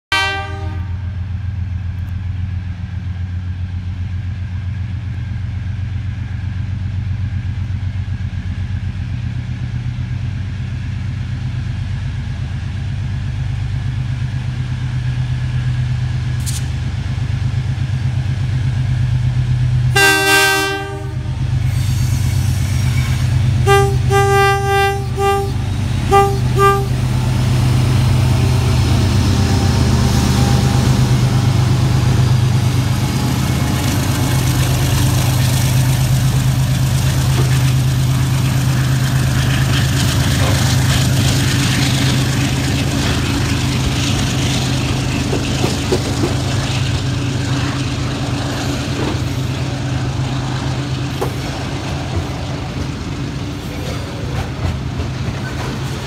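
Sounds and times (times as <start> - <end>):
train air horn: 0.1 - 1.2, 19.9 - 22.8, 23.6 - 27.0
diesel locomotive engine drone: 0.1 - 56.0.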